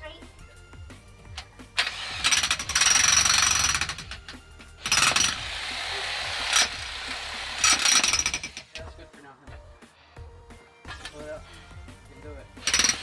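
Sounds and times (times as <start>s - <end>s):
jackhammer hammering: 1.8s - 8.8s, 12.6s - 13.0s.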